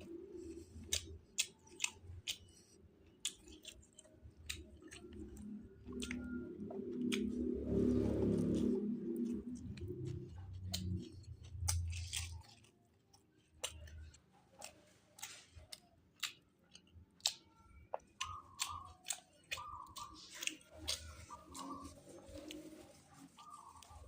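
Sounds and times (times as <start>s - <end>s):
person chewing food: 0.0s - 24.0s
low rumble: 5.2s - 12.1s.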